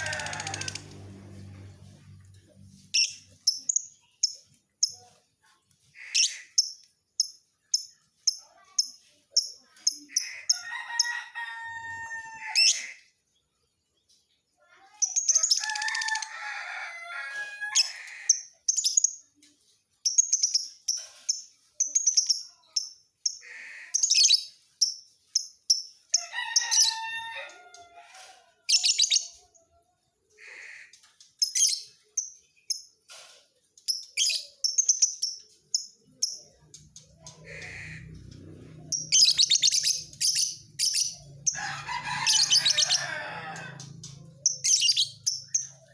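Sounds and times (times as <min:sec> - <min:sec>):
lovebird chirping: 0:44.4 - 0:45.7.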